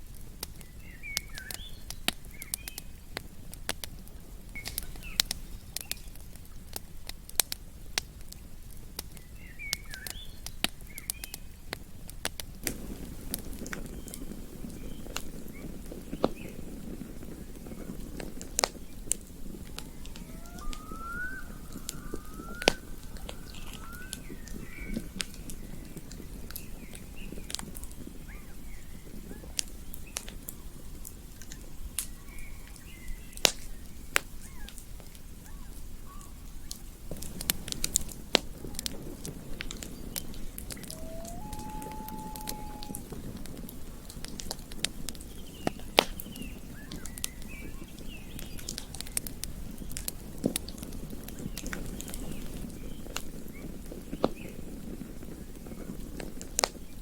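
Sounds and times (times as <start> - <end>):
campfire crackling and popping: 0.0 - 57.0
faint short rising calls: 19.7 - 25.2, 40.4 - 43.2.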